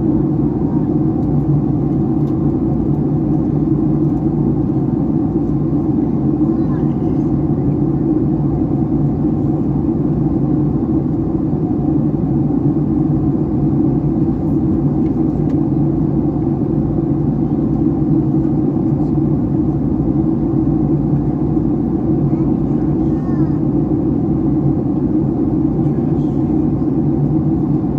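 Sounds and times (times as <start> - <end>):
airliner cabin engine rumble: 0.0 - 27.9.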